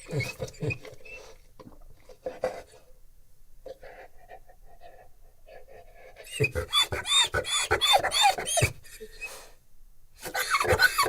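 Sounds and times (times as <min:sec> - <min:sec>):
dog breathing: 0:03.7 - 0:09.6, 0:10.2 - 0:11.0.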